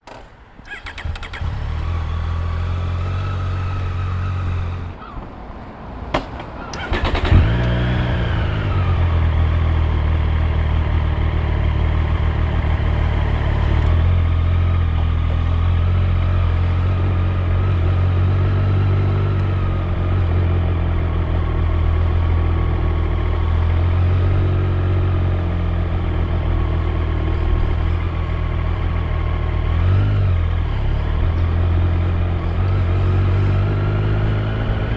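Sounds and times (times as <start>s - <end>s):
motorcycle engine idling and revving: 0.0s - 5.3s, 6.2s - 34.9s.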